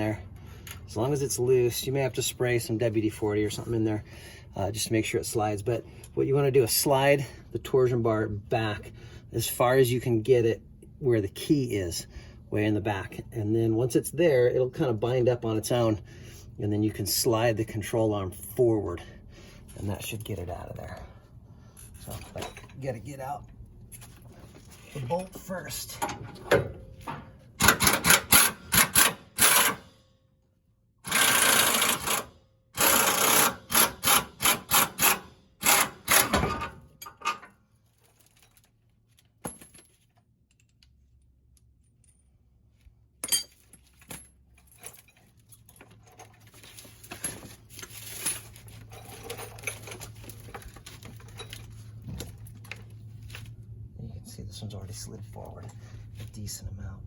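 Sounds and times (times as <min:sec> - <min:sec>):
impact wrench bursts: 0:27.6 - 0:29.9, 0:31.0 - 0:36.6.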